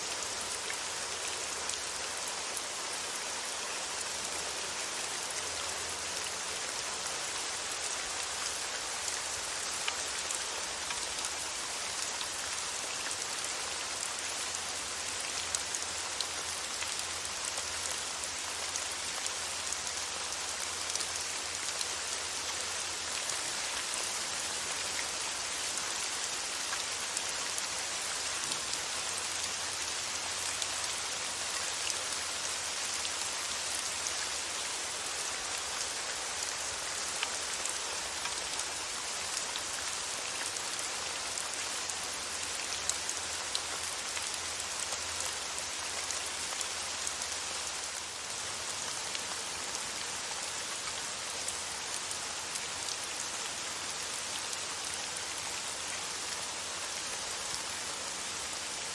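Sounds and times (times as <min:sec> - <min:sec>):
rain falling on a surface: 0:00.0 - 0:58.9.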